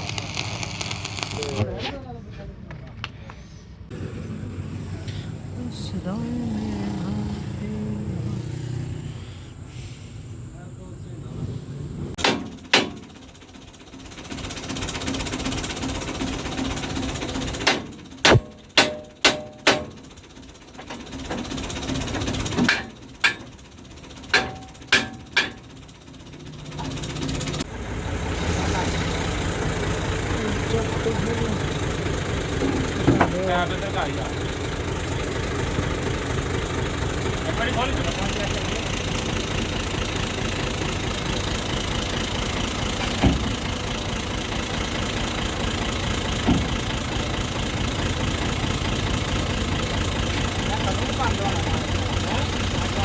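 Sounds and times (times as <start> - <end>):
engine running: 0.0 - 53.0
hammer striking metal: 12.2 - 13.1, 17.6 - 20.0, 22.6 - 23.5, 24.3 - 25.7.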